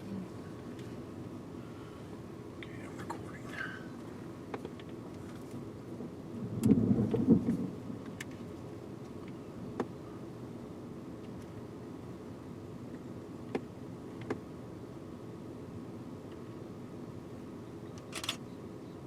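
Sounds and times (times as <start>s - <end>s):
vehicle humming: 0.0s - 19.0s
thunder rumbling: 6.3s - 8.1s.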